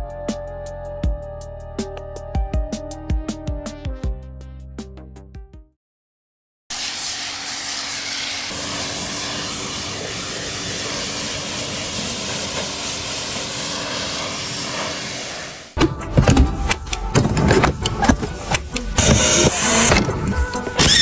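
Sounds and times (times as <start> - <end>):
motor running with hiss: 6.7 - 15.8, 18.4 - 20.0.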